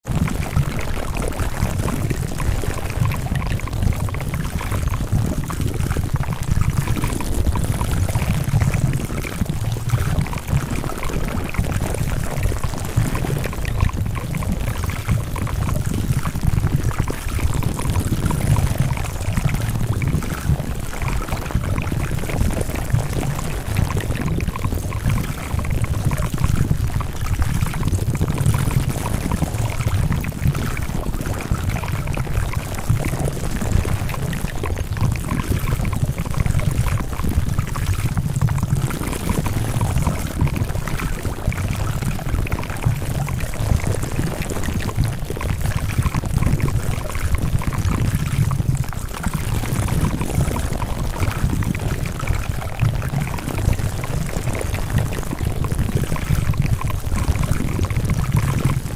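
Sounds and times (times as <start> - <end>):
dense crackling with clicks: 0.0 - 58.9.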